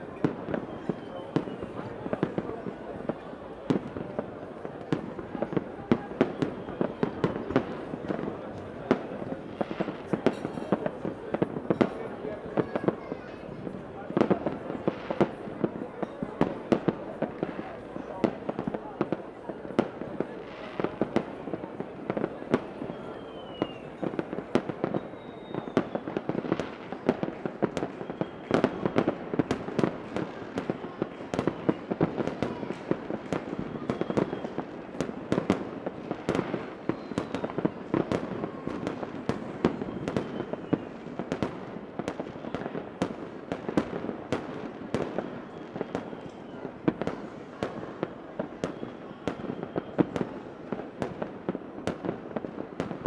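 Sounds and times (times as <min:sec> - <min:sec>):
fireworks cracking and popping: 0:00.0 - 0:53.0
whistles of rising shells: 0:22.9 - 0:23.9, 0:25.0 - 0:26.1.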